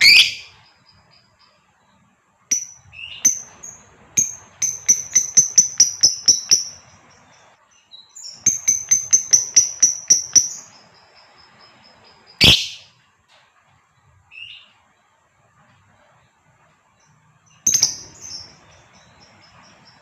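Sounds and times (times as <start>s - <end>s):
lovebird chirping rapidly: 0.0s - 1.4s, 2.5s - 12.9s, 17.5s - 20.0s.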